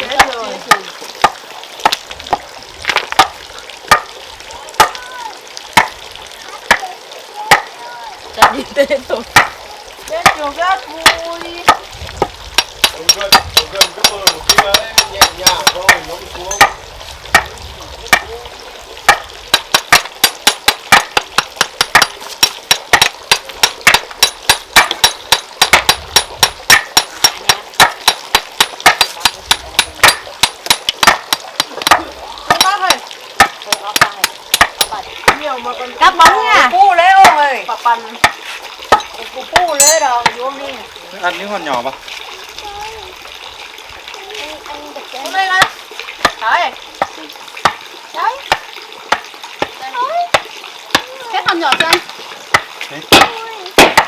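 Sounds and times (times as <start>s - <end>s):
masonry tool striking brick: 10.2s - 10.4s, 12.6s - 17.5s, 19.1s - 35.4s, 38.2s - 40.4s, 50.3s - 54.0s.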